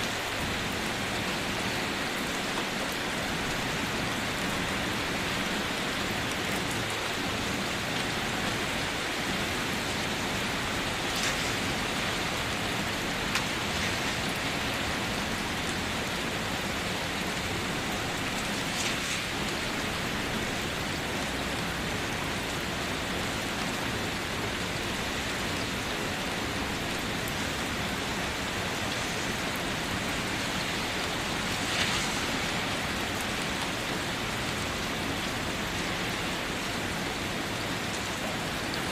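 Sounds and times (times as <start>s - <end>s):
heavy rain: 0.0s - 38.9s
rushing water of waterfall: 0.0s - 38.9s
water splashes: 17.0s - 20.8s, 28.6s - 34.4s.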